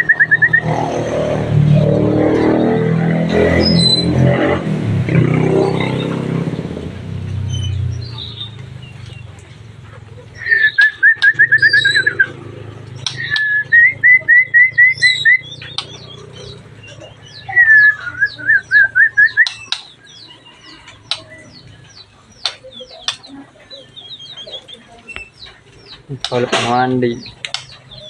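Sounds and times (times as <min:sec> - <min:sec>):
bird singing whistled notes: 0:03.5 - 0:04.2, 0:07.4 - 0:09.3, 0:10.4 - 0:12.4, 0:13.0 - 0:26.0.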